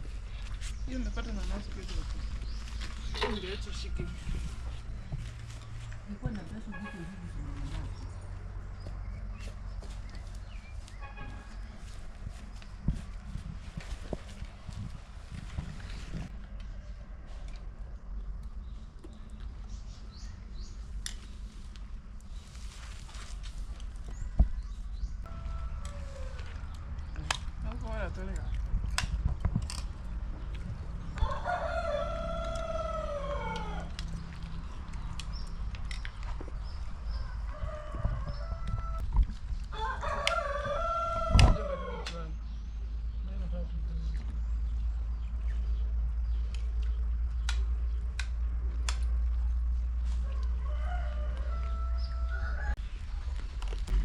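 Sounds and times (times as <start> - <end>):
rooster crowing: 25.3 - 26.8, 31.2 - 34.0, 37.1 - 39.0, 39.7 - 42.1, 50.2 - 52.8.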